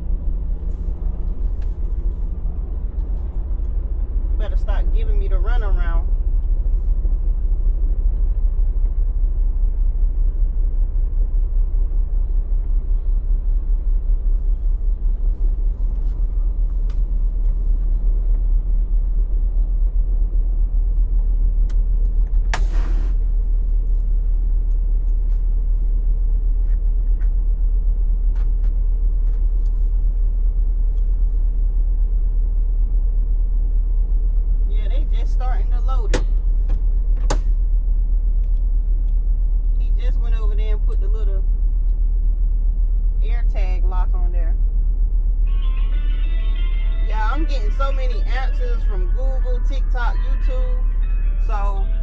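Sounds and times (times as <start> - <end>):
diesel truck engine running: 0.0 - 52.0.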